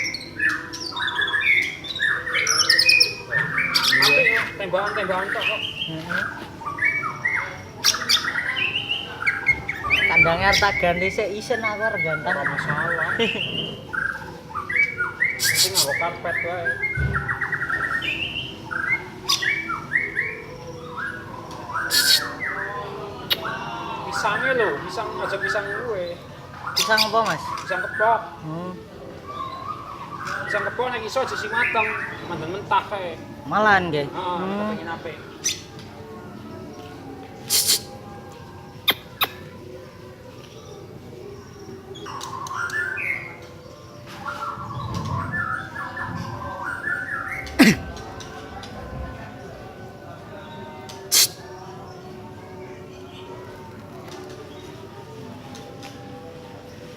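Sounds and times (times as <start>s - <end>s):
bird warbling and chattering: 0.0s - 28.4s, 37.4s - 38.1s, 38.7s - 39.9s, 41.9s - 49.7s, 50.9s - 51.8s
bird chirping whistled notes: 21.8s - 22.4s.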